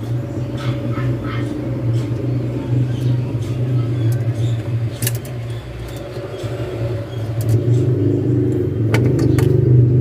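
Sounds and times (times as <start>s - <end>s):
low motor hum: 0.0s - 10.0s
sharp clicks: 4.1s - 6.6s.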